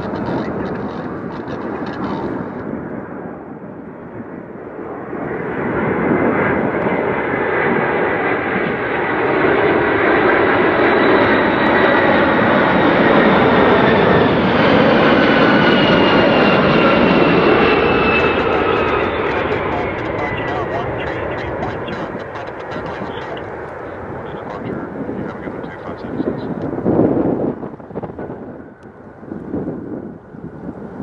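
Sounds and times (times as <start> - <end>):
jet airliner engine noise: 0.0 - 31.0
high whines dropping in pitch: 13.4 - 28.7.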